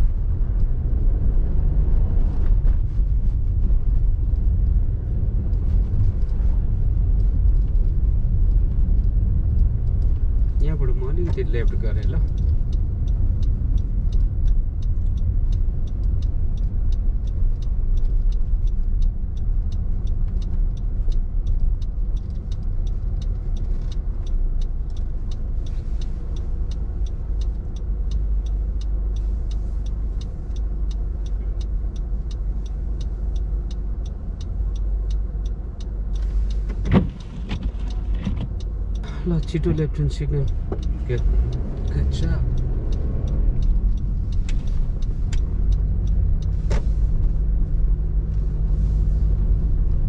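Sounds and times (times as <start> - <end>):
car engine and road noise: 0.0 - 50.0
fast even ticking: 37.8 - 48.2.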